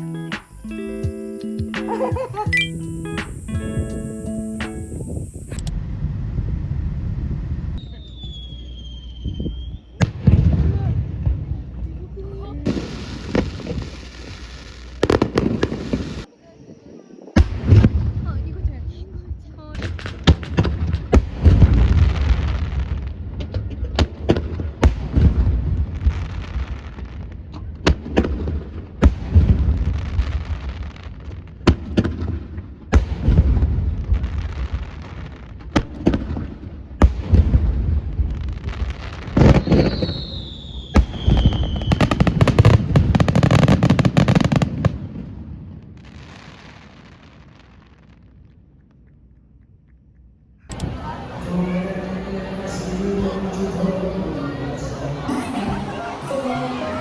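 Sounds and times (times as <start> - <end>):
descending firework whistle: 7.8 - 10.0, 39.4 - 42.8
deep firework booms: 9.2 - 11.7, 19.8 - 47.2.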